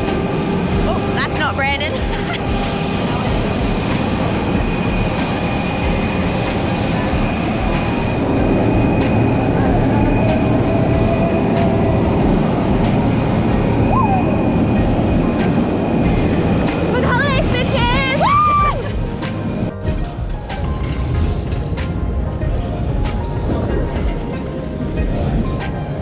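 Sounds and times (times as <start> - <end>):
sharp clicks of train: 0.0 - 13.8, 14.5 - 18.3, 25.6 - 26.0
moving train rumble: 0.0 - 26.0.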